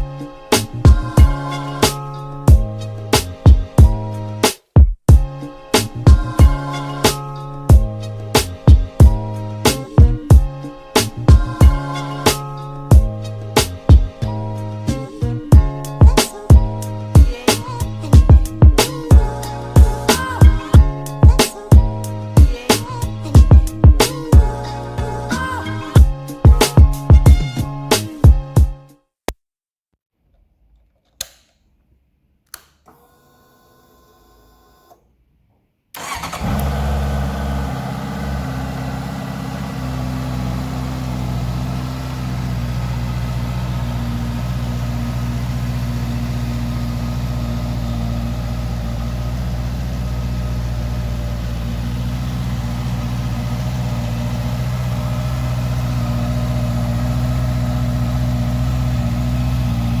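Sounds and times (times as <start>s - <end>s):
short clicks: 30.7s - 31.9s, 32.5s - 33.1s
motorcycle engine starting and idling: 36.0s - 60.0s.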